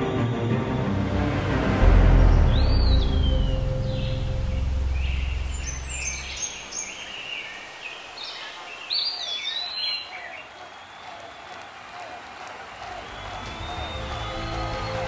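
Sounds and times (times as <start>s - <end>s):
small birds chirping: 2.5s - 11.7s.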